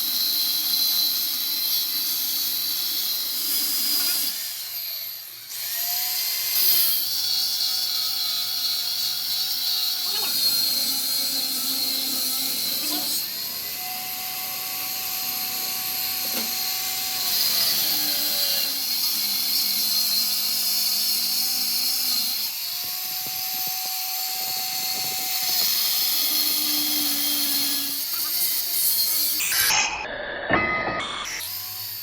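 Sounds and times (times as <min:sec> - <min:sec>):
power tool running with hiss: 0:00.0 - 0:30.1, 0:31.2 - 0:32.0.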